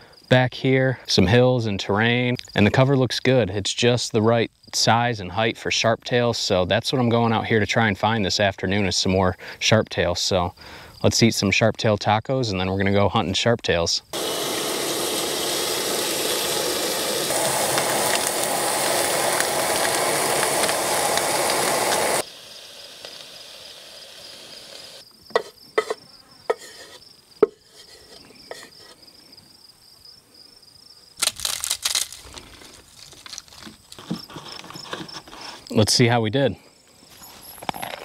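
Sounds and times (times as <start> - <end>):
faint insect trill: 2.1 - 3.4, 22.2 - 31.2, 36.6 - 38.0
vegetables sizzling in a pot: 14.2 - 29.0
rustling: 31.2 - 35.7.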